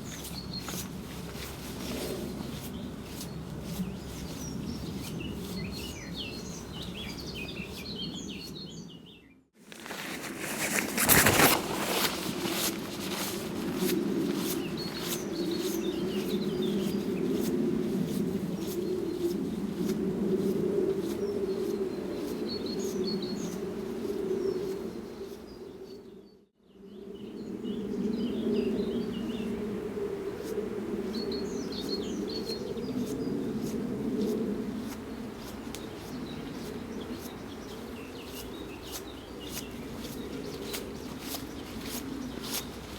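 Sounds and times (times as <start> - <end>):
birds chirping and singing: 2.7 - 11.2, 13.2 - 17.0.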